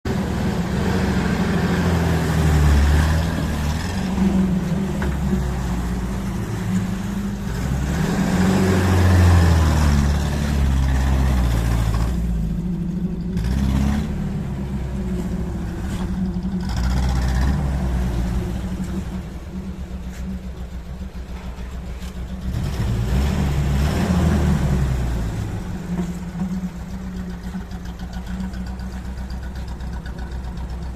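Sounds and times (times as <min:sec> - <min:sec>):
petrol engine revving: 0:00.0 - 0:30.9.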